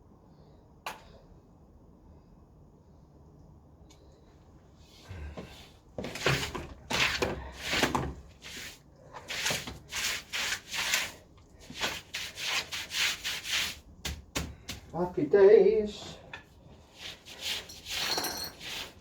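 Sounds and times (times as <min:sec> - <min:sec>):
scrubbing on a hard surface: 0:06.0 - 0:14.2, 0:16.8 - 0:19.0.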